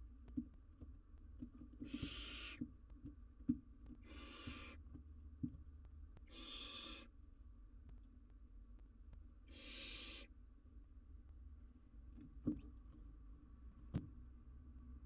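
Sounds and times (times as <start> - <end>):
owlet hissing calls: 1.9 - 2.6, 4.0 - 4.8, 6.3 - 7.1, 9.5 - 10.3.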